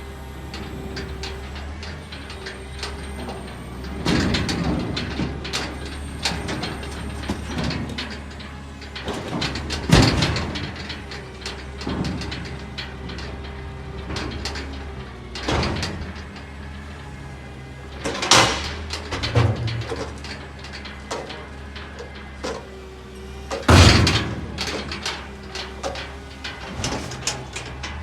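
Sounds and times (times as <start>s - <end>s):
garbage truck engine running: 0.0s - 28.0s
metallic clanks and creaks: 0.2s - 28.0s
heavy bang: 23.6s - 28.0s.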